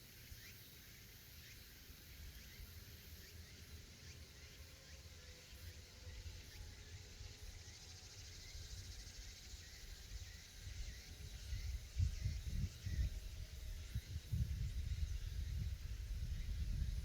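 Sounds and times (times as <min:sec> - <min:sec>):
cicadas buzzing: 0:00.0 - 0:17.0.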